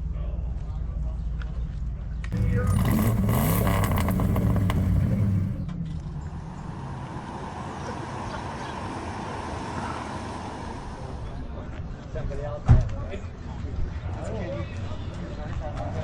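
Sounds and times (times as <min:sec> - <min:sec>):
outdoor background noise: 0:00.0 - 0:16.0
car engine running loud: 0:02.3 - 0:11.5.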